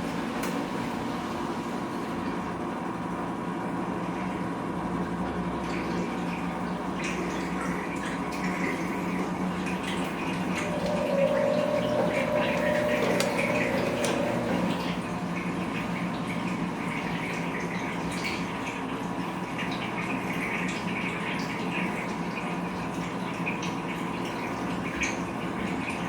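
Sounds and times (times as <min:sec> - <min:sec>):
washing machine running: 0:00.0 - 0:26.0
water moving: 0:05.7 - 0:18.9
clear tone: 0:10.6 - 0:14.7.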